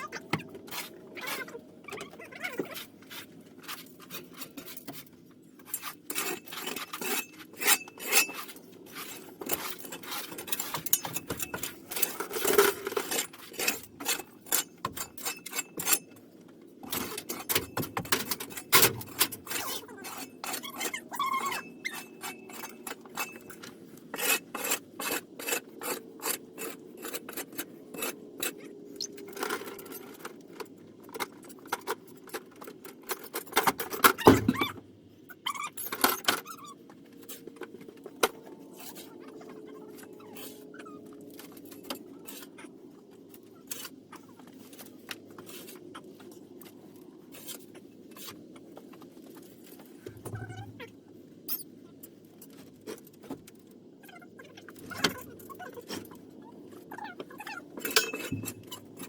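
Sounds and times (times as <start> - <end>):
scraping rubbing and clicking: 0.0 - 34.8.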